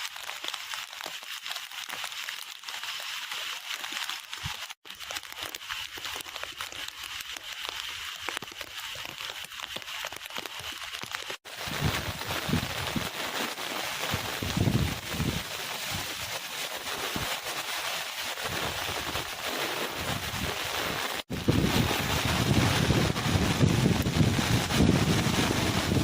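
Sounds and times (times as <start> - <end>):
heavy rain pouring: 9.0 - 26.0
wind buffeting microphone: 11.6 - 13.1, 14.1 - 15.4, 21.3 - 26.0.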